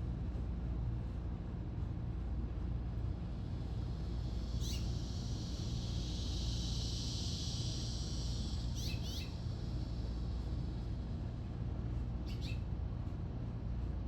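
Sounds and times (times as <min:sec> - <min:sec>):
low outdoor rumble: 0:00.0 - 0:14.0
small bird chirping: 0:04.2 - 0:10.5, 0:12.2 - 0:12.6.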